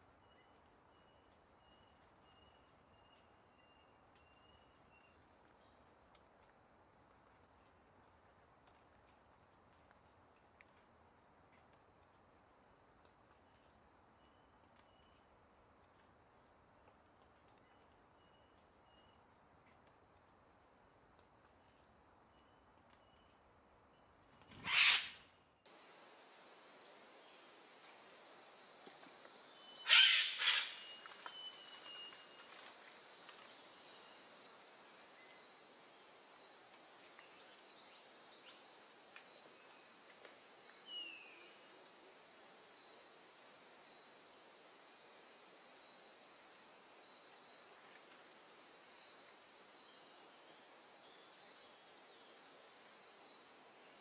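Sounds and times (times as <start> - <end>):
insect drone: 17.7 - 54.0
loud short animal calls: 24.6 - 25.2, 29.9 - 30.8.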